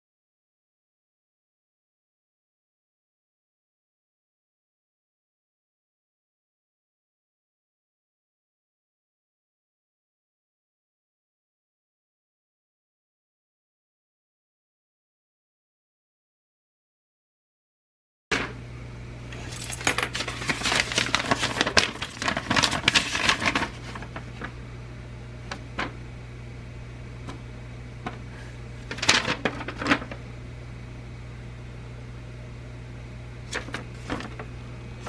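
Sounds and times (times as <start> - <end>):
metal and plastic parts clattering: 19.4 - 24.0, 28.9 - 30.2.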